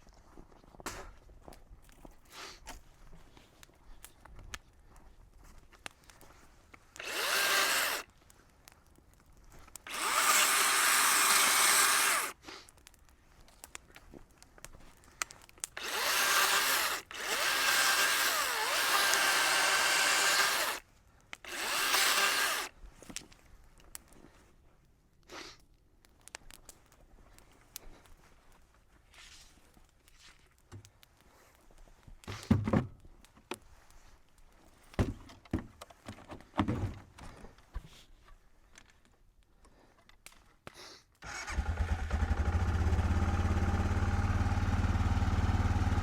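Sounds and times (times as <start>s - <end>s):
power tool running: 7.0s - 8.0s, 9.9s - 12.3s, 15.8s - 20.8s, 21.5s - 22.7s, 41.6s - 46.0s.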